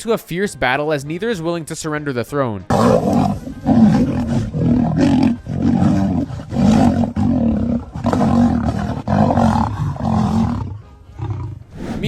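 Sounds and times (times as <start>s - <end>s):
lions roaring and snarling: 2.7s - 12.0s.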